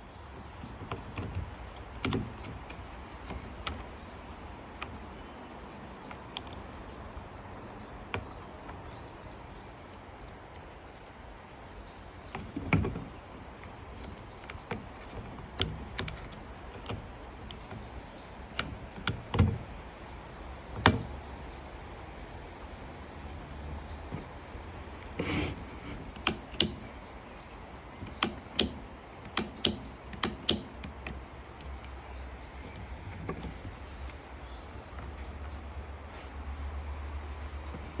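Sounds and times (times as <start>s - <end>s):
tools clicking on a workbench: 12.2s - 19.8s, 23.2s - 36.0s.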